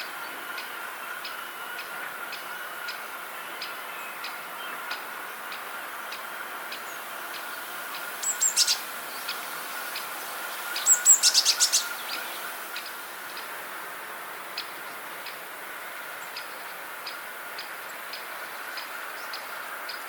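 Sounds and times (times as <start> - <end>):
faint steady hum: 0.0 - 20.0
small songbird chirping: 1.3 - 13.5.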